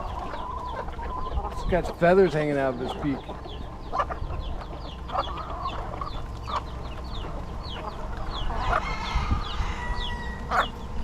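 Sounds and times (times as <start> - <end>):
chickens clucking: 0.0 - 11.0
chicks peeping: 0.0 - 11.0.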